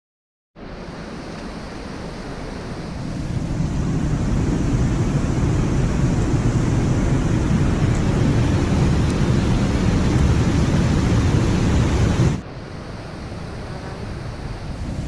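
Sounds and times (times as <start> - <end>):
loud rushing noise with rumble: 2.6 - 13.2.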